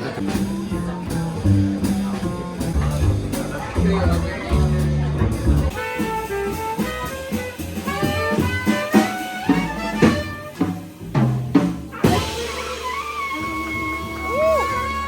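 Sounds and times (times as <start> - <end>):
bass: 0.0 - 15.0
drums: 0.0 - 15.0
saxophone melody: 5.6 - 10.9, 11.9 - 15.0.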